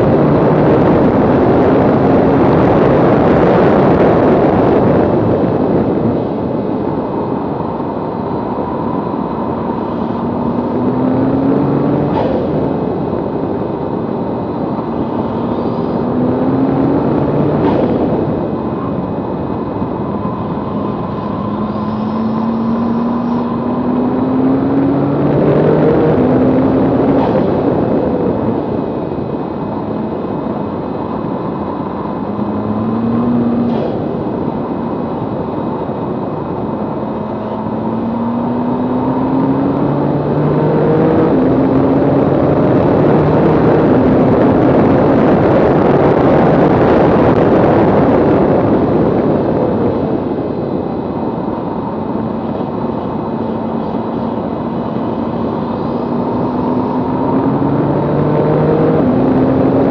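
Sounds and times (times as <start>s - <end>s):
wind and road rush: 0.0s - 59.9s
car engine revving hard: 9.5s - 12.9s, 20.3s - 28.5s, 37.1s - 46.6s, 51.9s - 59.9s.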